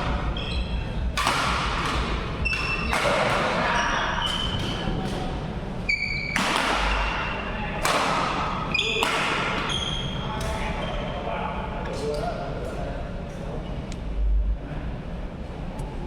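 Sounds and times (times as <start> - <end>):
racket striking shuttlecock: 1.1 - 3.6
shoes squeaking on court floor: 2.4 - 4.8, 5.9 - 7.3, 9.6 - 11.1.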